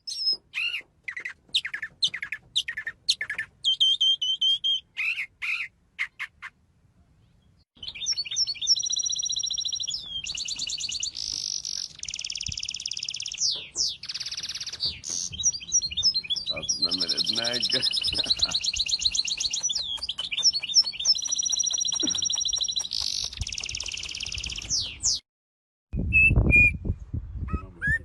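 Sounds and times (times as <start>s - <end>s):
songbirds chirping and whistling: 0.0s - 6.6s, 7.2s - 25.2s, 26.0s - 28.0s
bird rattling trills: 8.1s - 24.8s.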